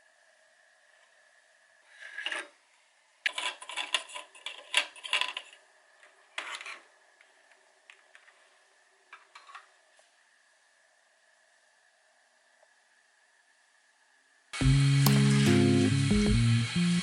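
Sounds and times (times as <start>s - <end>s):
plastic clicks knocks and scrapes: 3.3s - 5.6s.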